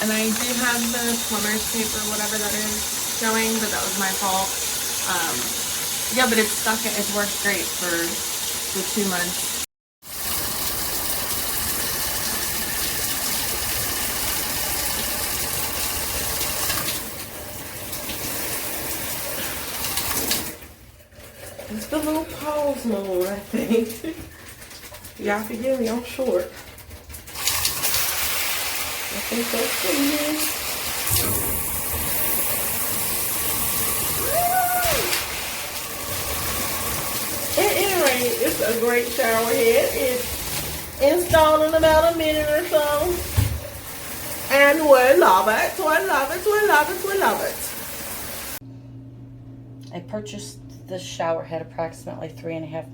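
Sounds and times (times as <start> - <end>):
shower head spraying water: 0.0 - 17.1, 27.4 - 48.6.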